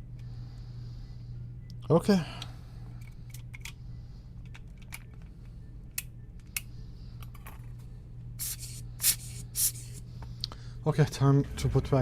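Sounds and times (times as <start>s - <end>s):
plastic parts clicking: 3.0s - 3.8s, 4.4s - 5.3s.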